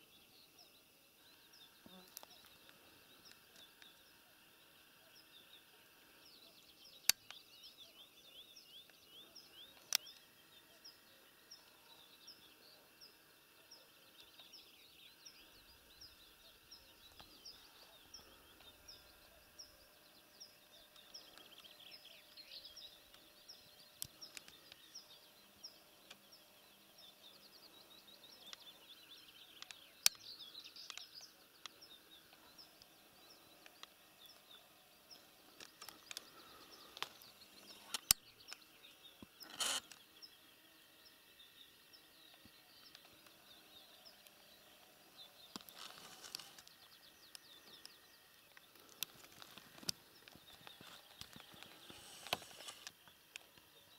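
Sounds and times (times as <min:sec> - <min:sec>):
sharp clicks: 0:35.6 - 0:38.6.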